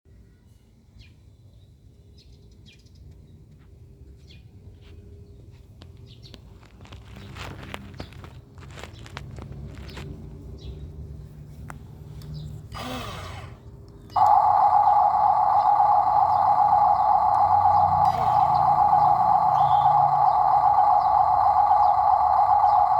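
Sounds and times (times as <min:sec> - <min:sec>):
engine humming: 0:06.9 - 0:22.9
birds chirping: 0:14.0 - 0:22.9
faint low rumble: 0:14.1 - 0:22.9.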